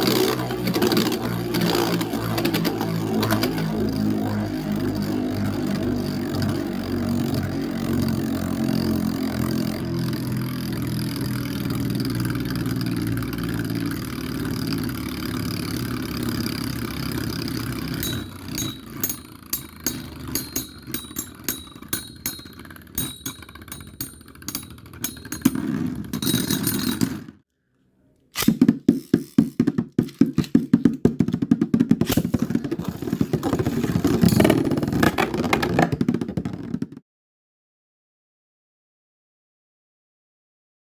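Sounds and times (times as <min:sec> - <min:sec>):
spinning tops whirring: 0:10.2 - 0:27.4
spinning tops clattering hits: 0:17.9 - 0:27.3.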